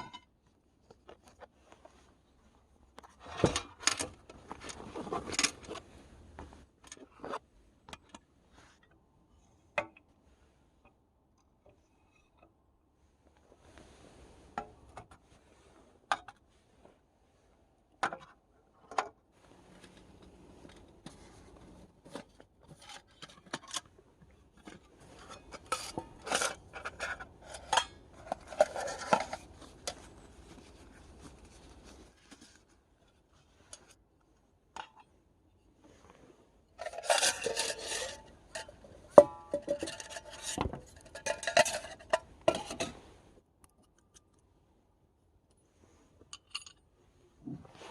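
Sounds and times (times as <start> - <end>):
scraping and rustling: 3.0 - 7.4, 24.5 - 34.0, 35.8 - 43.3
cookware clicks and knocks: 36.8 - 42.9.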